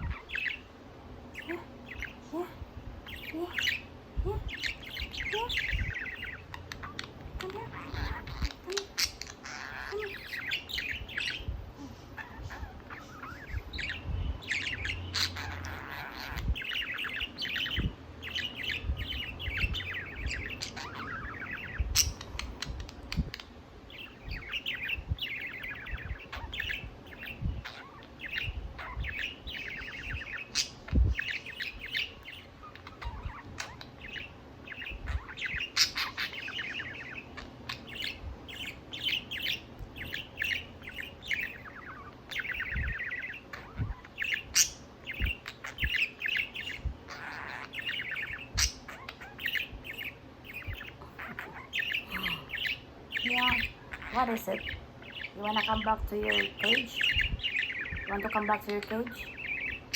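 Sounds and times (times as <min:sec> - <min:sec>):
budgerigar warbling and chattering: 0:00.0 - 0:59.9
sharp bird clicks: 0:14.5 - 0:59.9.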